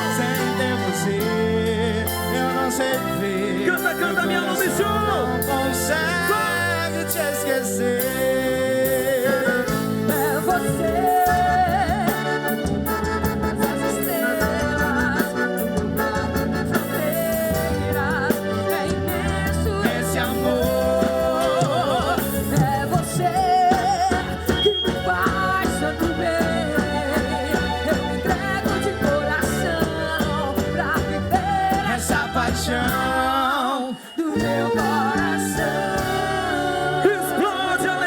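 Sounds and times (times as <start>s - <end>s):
steady bass: 0.0s - 33.6s, 34.4s - 38.0s
keyboard accompaniment: 0.0s - 38.0s
person singing with vibrato: 0.0s - 38.0s.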